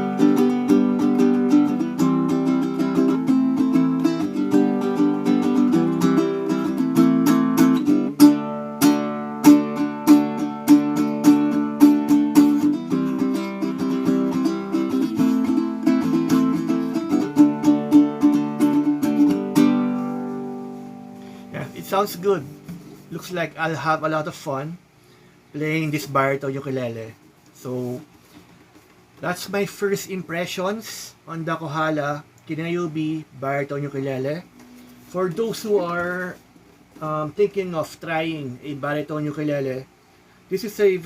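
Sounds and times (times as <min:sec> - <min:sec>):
ukulele strummed and plucked: 0:00.0 - 0:23.4.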